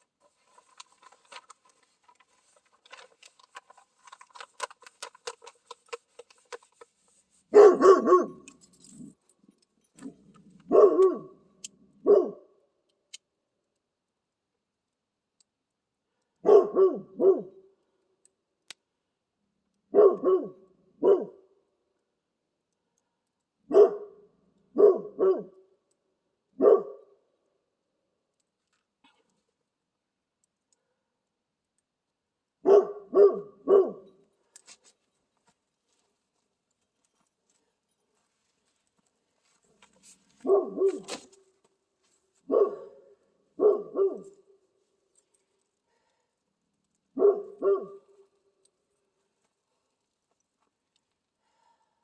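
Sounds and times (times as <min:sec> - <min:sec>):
dog barking: 0:07.5 - 0:08.5, 0:10.7 - 0:11.4, 0:12.0 - 0:12.5, 0:16.4 - 0:17.6, 0:19.9 - 0:21.4, 0:23.7 - 0:25.6, 0:26.6 - 0:27.2, 0:32.6 - 0:34.1, 0:40.4 - 0:41.3, 0:42.4 - 0:44.3, 0:47.1 - 0:48.1.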